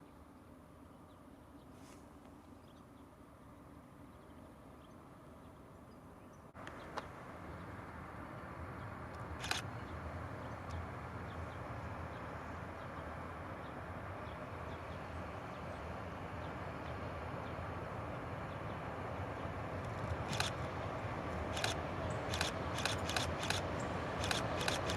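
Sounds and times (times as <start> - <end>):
distant diesel locomotive rumble: 6.6 - 24.9
birds chirping: 8.8 - 24.9
short clicks: 9.1 - 9.7, 19.8 - 20.7, 21.5 - 24.9.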